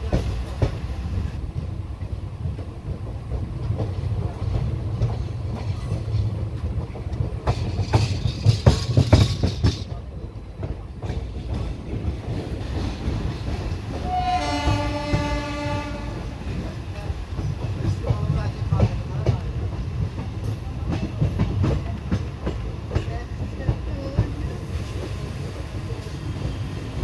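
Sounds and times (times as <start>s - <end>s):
train wheels rumbling on rails: 0.0s - 27.0s
wheels clanking over rail joints: 1.6s - 15.8s
train horn: 14.0s - 16.3s.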